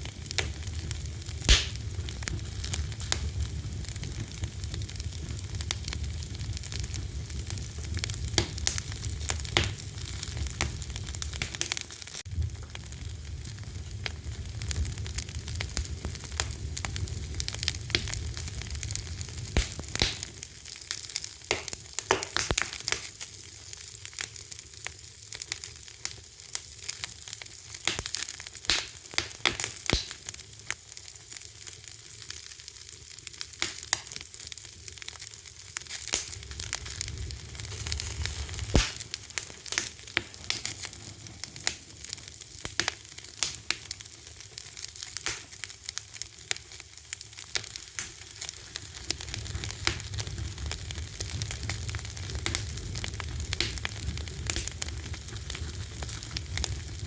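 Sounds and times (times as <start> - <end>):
fire crackling: 0.0 - 57.0.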